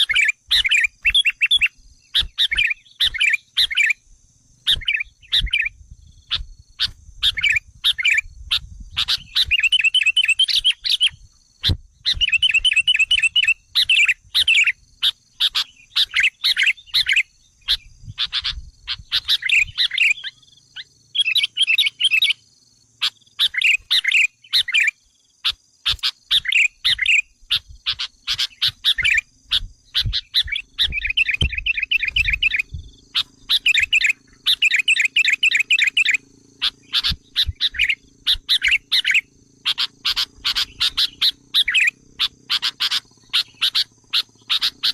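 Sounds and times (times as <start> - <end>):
bulbuls chattering trills: 23.0 - 44.9.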